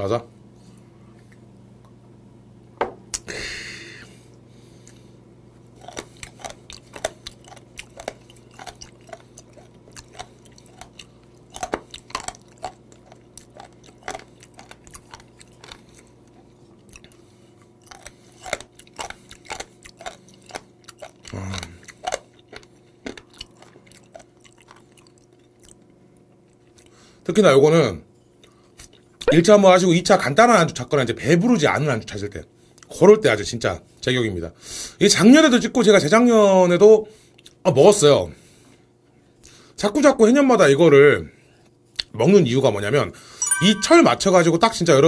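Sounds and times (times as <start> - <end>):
crunchy chewing clicks: 5.7 - 27.0.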